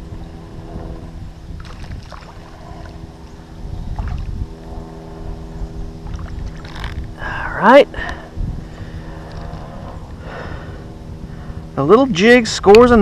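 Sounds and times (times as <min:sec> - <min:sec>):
steady low hum: 0:00.0 - 0:13.0
wind rumbling on microphone: 0:00.0 - 0:13.0
small clicks and rustles: 0:06.2 - 0:07.2.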